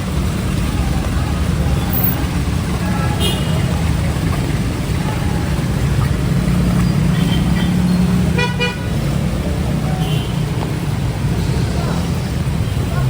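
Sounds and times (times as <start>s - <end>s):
traffic engines rumbling: 0.0s - 13.0s
vehicle horn toot: 2.9s - 3.6s, 8.3s - 8.9s.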